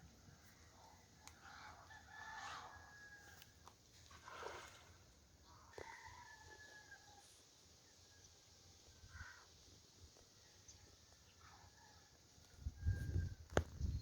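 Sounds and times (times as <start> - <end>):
rooster crowing in the distance: 1.5 - 3.5, 5.7 - 7.4, 11.4 - 13.6.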